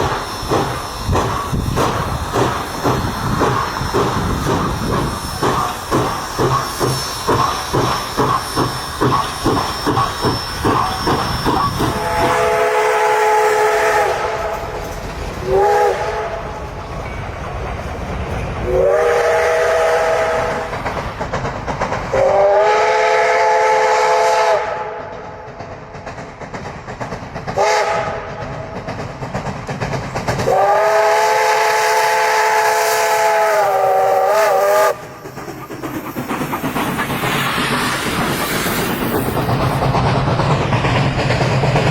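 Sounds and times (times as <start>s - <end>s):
steam hissing: 0.0s - 41.9s
steam locomotive chuffing: 0.0s - 41.9s
steam whistle blasts: 6.5s - 14.8s, 15.4s - 16.5s, 18.6s - 20.7s, 22.1s - 25.1s, 27.6s - 28.3s, 30.5s - 35.0s.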